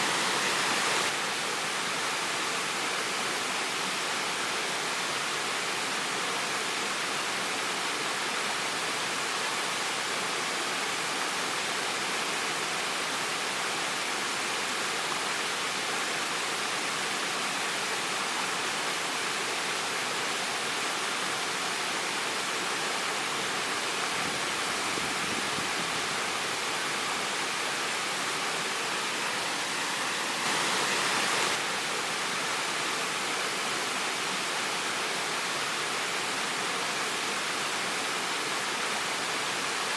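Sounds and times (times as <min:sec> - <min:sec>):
waterfall splashing: 0:00.0 - 0:01.2, 0:23.0 - 0:38.0.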